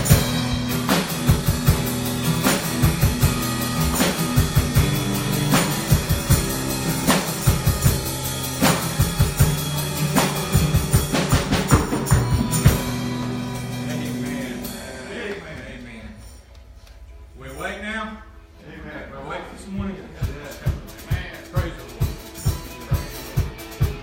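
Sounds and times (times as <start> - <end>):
drum kit steady beat: 0.0 - 15.6, 19.6 - 24.0
held bass notes and chords: 0.0 - 16.2, 19.6 - 24.0
worship band music: 0.0 - 24.0.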